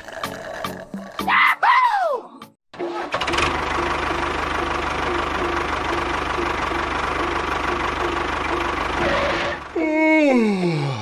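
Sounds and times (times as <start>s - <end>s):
small engine idling: 3.1s - 9.9s.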